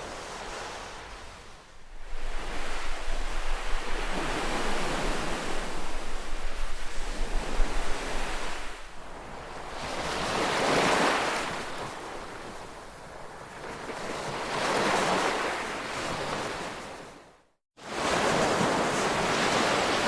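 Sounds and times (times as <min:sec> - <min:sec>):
ocean waves washing on beach: 0:00.0 - 0:20.0.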